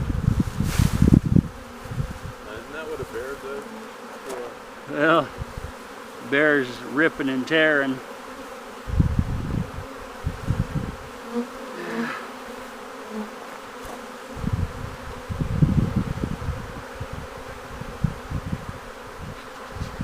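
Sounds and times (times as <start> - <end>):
bee swarm buzzing: 0.0 - 20.0
low rumbles on microphone: 8.9 - 11.1, 14.3 - 20.0.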